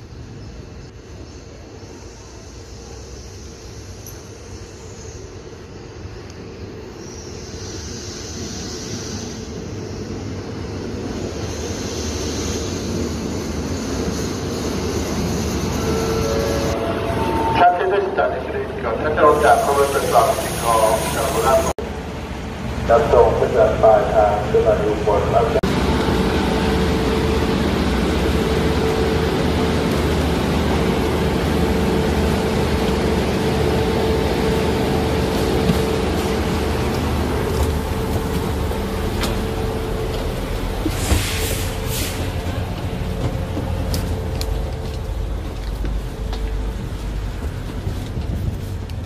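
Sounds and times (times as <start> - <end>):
train hiss: 0.0 - 21.8, 38.6 - 42.8
passenger train rumbling: 0.0 - 49.0.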